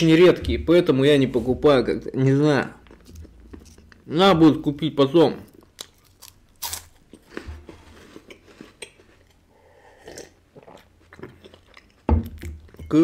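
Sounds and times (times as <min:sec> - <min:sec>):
chewing crunchy wafer: 0:05.4 - 0:12.8.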